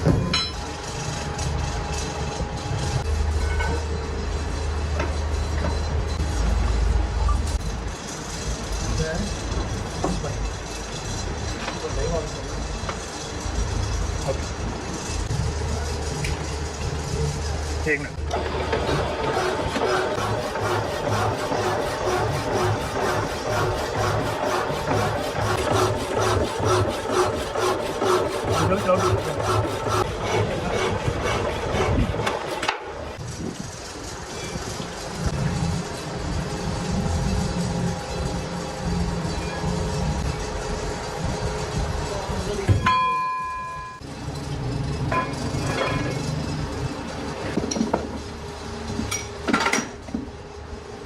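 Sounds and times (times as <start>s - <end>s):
tool rasping against metal: 7.5s - 18.0s, 18.8s - 32.8s
struck steel ringing: 42.7s - 44.0s
metal parts clanking: 45.1s - 46.6s.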